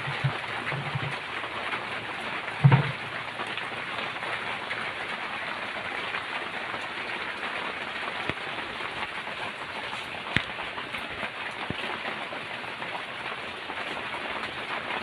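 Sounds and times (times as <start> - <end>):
steady rain hissing: 0.0 - 15.0
sharp drip or knock: 2.6 - 3.1.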